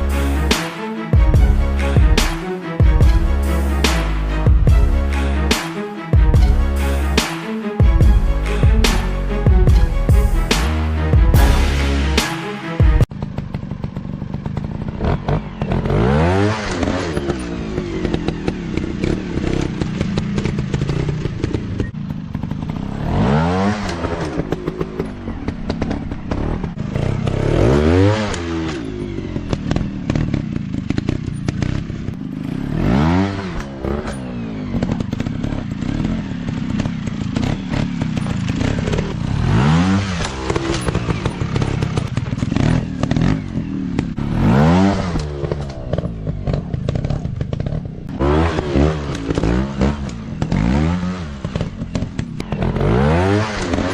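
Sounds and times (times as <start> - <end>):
motocross bike engines revving: 13.2 - 53.9.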